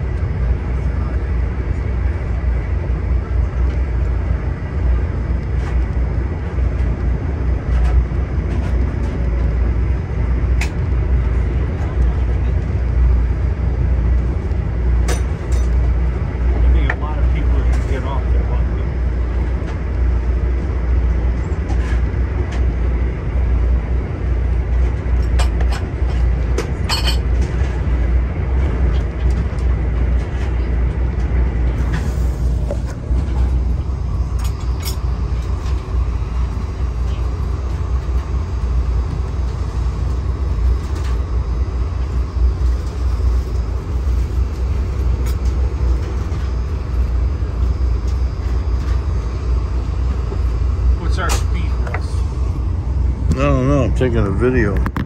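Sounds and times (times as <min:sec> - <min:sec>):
passenger train rumbling at speed: 0:00.0 - 0:55.0.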